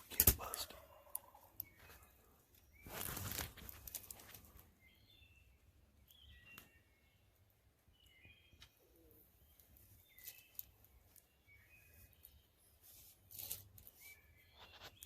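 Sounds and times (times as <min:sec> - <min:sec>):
small songbirds chirping: 0:00.1 - 0:15.0.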